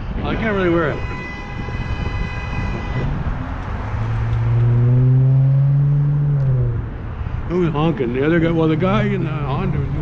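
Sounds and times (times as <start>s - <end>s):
wind on microphone: 0.0s - 7.5s
vehicle horn blast: 0.9s - 3.2s.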